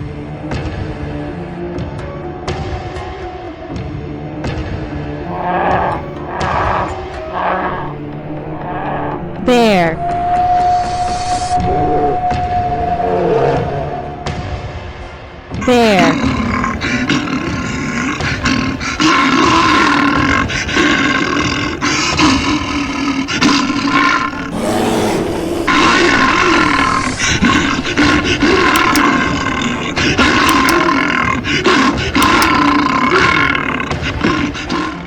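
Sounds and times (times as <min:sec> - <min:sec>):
bear growling and roaring: 0:05.2 - 0:10.0, 0:11.3 - 0:14.3, 0:15.6 - 0:35.0.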